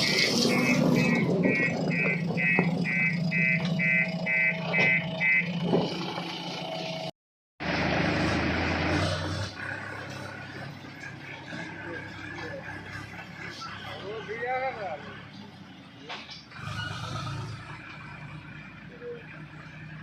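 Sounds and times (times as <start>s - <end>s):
rapid electronic beeper: 0.0s - 5.5s
diesel machinery engine running: 0.0s - 20.0s.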